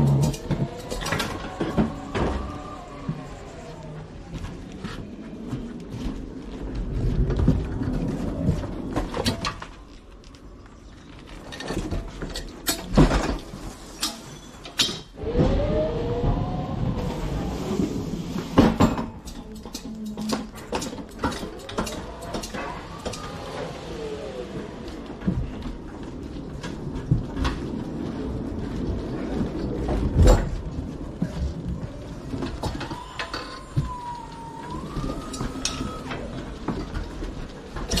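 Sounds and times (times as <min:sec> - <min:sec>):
motor whine: 0:00.0 - 0:04.9, 0:21.5 - 0:25.6.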